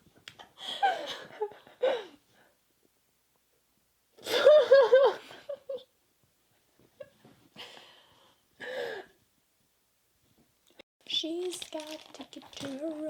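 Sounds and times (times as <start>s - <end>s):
woman laughing: 4.2s - 5.9s.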